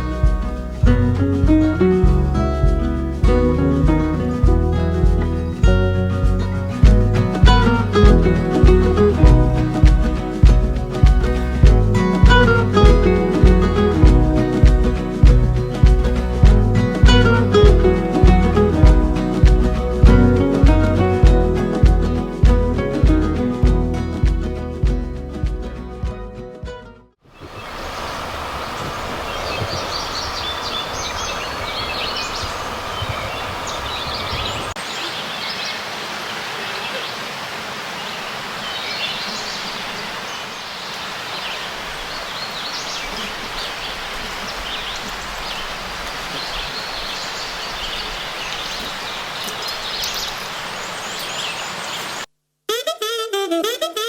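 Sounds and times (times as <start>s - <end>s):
outdoor background hiss: 0.0s - 25.9s, 27.2s - 52.7s
low rumble: 0.1s - 25.7s
birds chirping: 3.9s - 23.5s, 27.3s - 52.3s.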